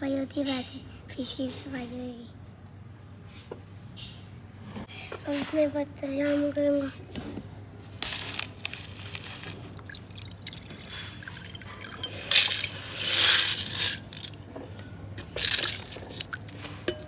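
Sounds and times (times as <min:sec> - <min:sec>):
water splashing in fish bowl: 0:08.0 - 0:14.4, 0:15.4 - 0:16.8.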